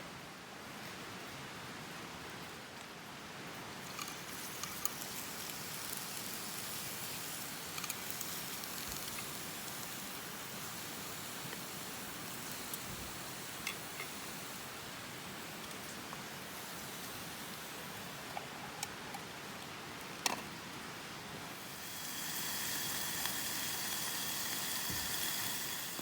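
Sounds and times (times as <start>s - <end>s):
campfire popping: 3.8s - 19.4s, 21.4s - 26.0s.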